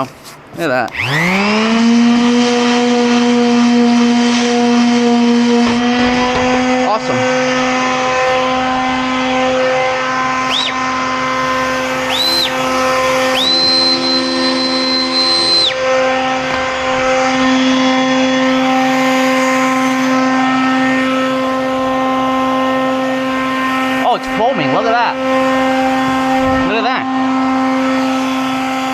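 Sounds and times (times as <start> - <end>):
steady motor hum: 0.9 - 28.9
high whistling tone: 9.8 - 22.6.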